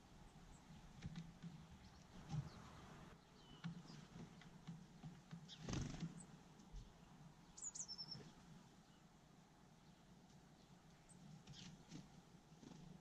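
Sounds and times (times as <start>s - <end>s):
high-pitched bird chirps: 7.6s - 8.2s.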